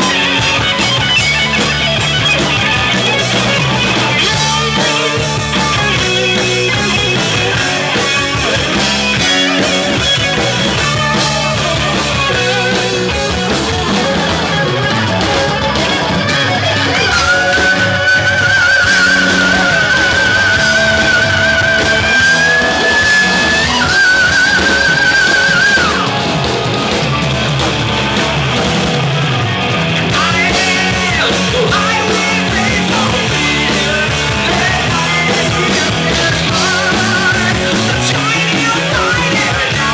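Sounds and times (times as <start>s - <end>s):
bass: 0.0s - 39.9s
distorted electric guitars: 0.0s - 39.9s
drums: 0.0s - 39.9s
person singing: 14.0s - 26.3s, 30.1s - 39.9s.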